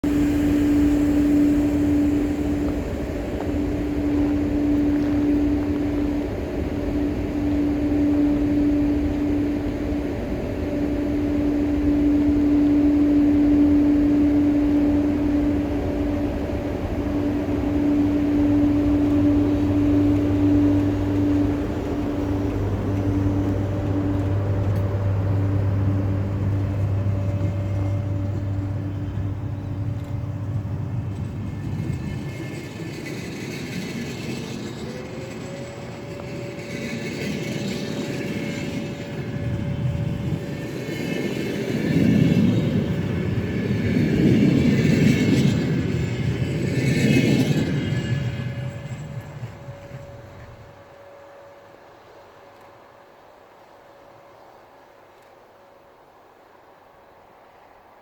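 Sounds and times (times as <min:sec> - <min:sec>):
mid-pitched tone: 0:00.0 - 0:31.2
deep drone: 0:00.0 - 0:50.8
electric locomotive hum: 0:00.0 - 0:58.0.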